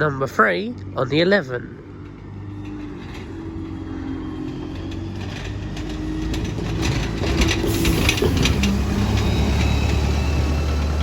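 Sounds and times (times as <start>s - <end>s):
diesel bus engine running: 0.0s - 11.0s
rattles: 4.7s - 11.0s.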